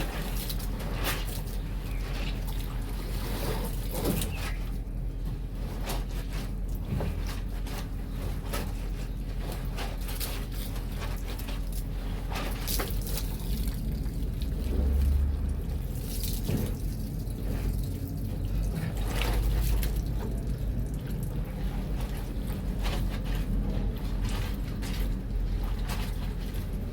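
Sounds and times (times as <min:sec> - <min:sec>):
water sloshing and splashing: 0:00.0 - 0:26.9.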